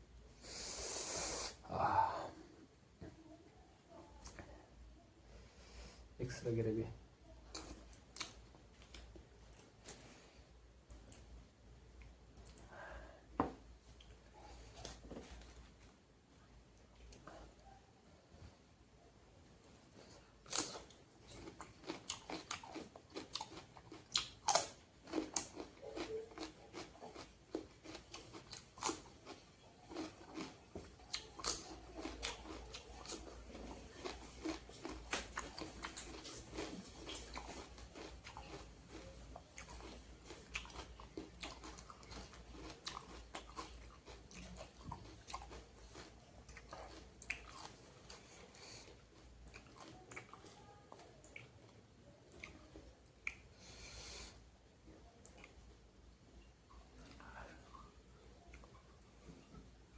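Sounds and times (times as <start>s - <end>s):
person chewing and crunching food: 7.5s - 10.3s, 19.6s - 55.9s.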